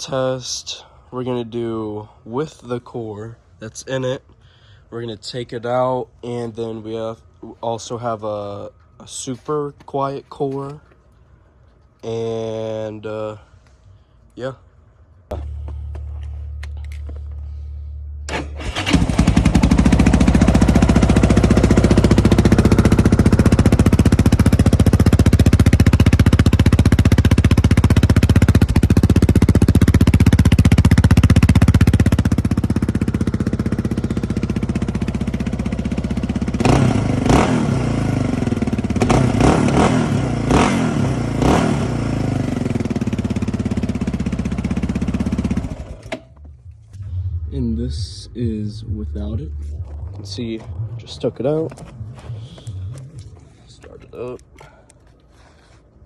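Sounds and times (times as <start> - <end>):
single-cylinder engine revving: 18.2 - 46.3.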